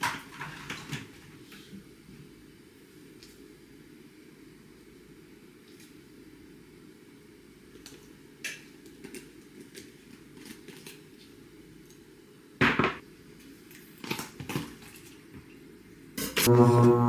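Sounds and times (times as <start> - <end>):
kitchen work clicks and knocks: 12.6 - 13.0
steady low hum: 16.2 - 17.0.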